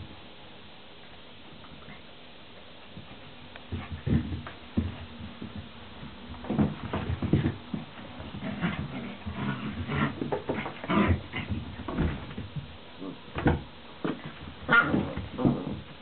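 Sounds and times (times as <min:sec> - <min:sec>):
puppies scuffling: 0:02.8 - 0:16.0
puppies growling and yipping: 0:14.7 - 0:15.8.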